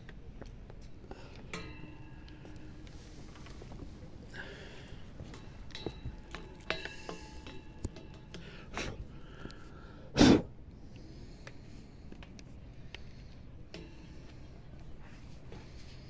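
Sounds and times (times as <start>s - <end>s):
crockery clinking: 1.4s - 9.0s.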